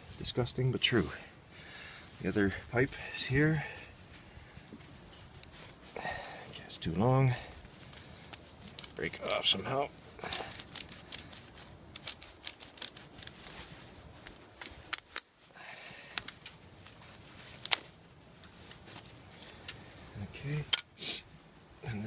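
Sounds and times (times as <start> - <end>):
stick cracking: 7.5 - 13.6.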